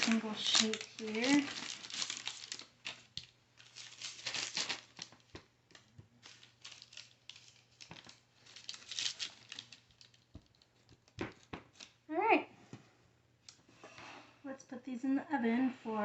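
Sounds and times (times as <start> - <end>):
parchment paper crinkling: 0.0 - 12.0.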